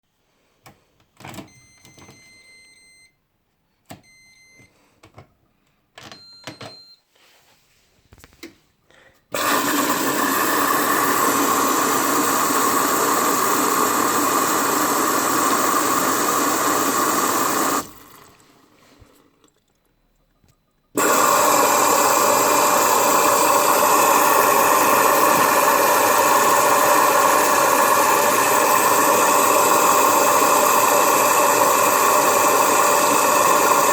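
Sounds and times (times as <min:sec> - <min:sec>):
washing machine beeping: 0:01.2 - 0:03.2, 0:03.9 - 0:04.8, 0:06.0 - 0:07.1
water rushing into machine: 0:09.4 - 0:18.6, 0:21.0 - 0:33.9.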